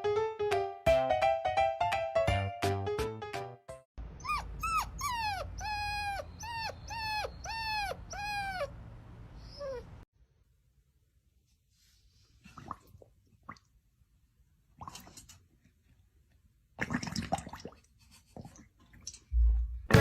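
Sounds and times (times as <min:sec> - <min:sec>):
piano-like music: 0:00.0 - 0:03.8, 0:19.4 - 0:20.0
animal whining calls: 0:04.2 - 0:08.8, 0:09.4 - 0:10.0.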